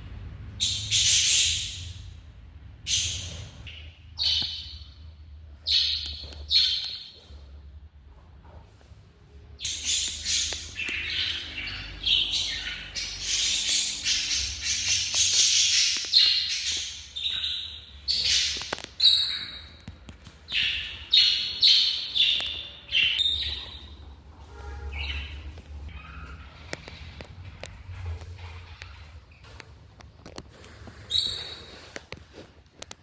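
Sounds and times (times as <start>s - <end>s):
parrots squawking and chirping: 0.6s - 2.1s, 2.8s - 4.9s, 9.6s - 19.9s, 20.5s - 30.4s, 31.0s - 31.9s.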